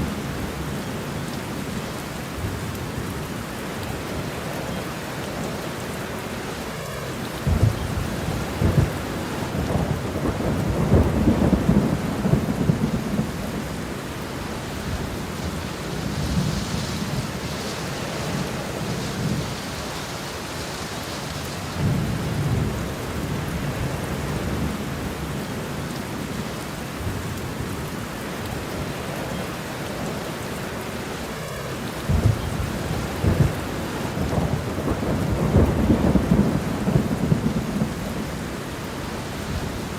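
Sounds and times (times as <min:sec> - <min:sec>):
steady rain: 0:00.0 - 0:39.9
rolling thunder: 0:07.3 - 0:19.8, 0:31.5 - 0:39.9.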